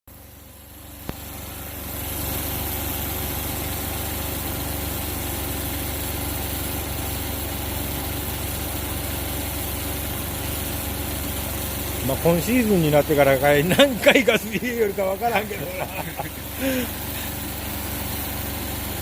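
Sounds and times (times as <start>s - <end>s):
car engine idling: 0.1s - 19.0s.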